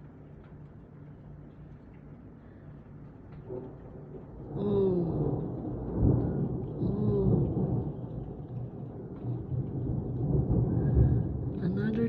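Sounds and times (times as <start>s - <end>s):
rain: 0.0s - 12.0s
thunder rumbling: 3.5s - 12.0s.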